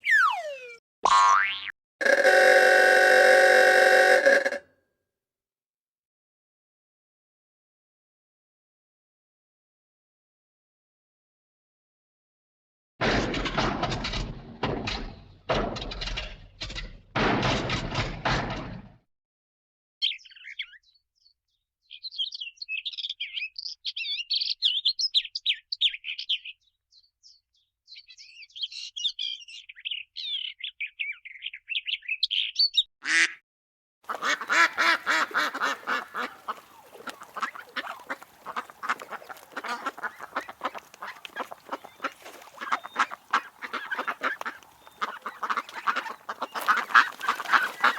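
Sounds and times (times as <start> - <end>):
ducks quacking: 1.4 - 4.6, 34.1 - 47.9
bluebirds chirping: 21.9 - 32.9, 34.1 - 47.9.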